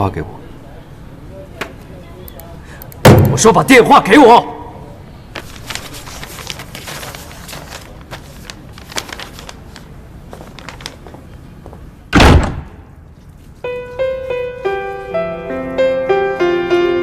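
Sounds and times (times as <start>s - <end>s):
loud thump: 3.0s - 3.5s, 12.1s - 12.8s.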